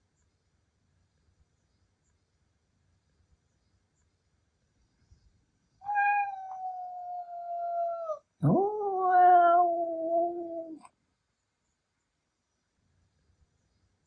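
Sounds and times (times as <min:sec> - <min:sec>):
cat howling meow: 0:05.8 - 0:10.8.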